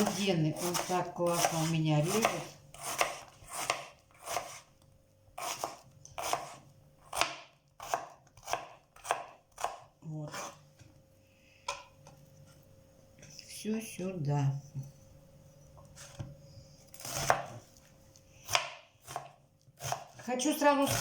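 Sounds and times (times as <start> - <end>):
knife slicing onion on board: 0.0 - 4.7, 5.4 - 10.6, 15.9 - 21.0.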